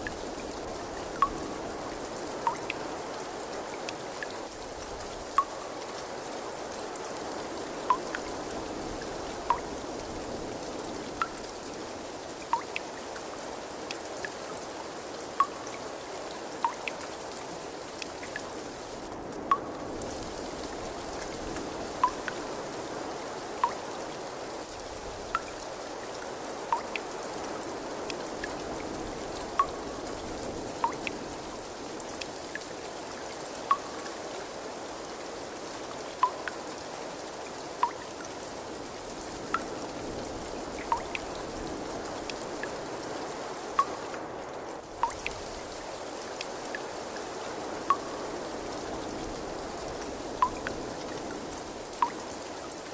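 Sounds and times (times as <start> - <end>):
water trickling: 0.0 - 44.2, 44.8 - 52.9
water drops plinking: 2.4 - 2.8, 5.3 - 5.7, 7.9 - 8.2, 9.5 - 9.7, 12.5 - 12.8, 15.4 - 15.8, 16.6 - 16.9, 19.5 - 19.8, 22.0 - 22.4, 23.6 - 23.9, 25.4 - 25.6, 26.7 - 27.0, 29.6 - 29.8, 30.8 - 31.2, 33.7 - 34.0, 36.2 - 36.6, 37.8 - 38.2, 40.8 - 41.3, 43.8 - 44.0, 45.0 - 45.4, 47.9 - 48.2, 50.4 - 50.8, 52.0 - 52.2.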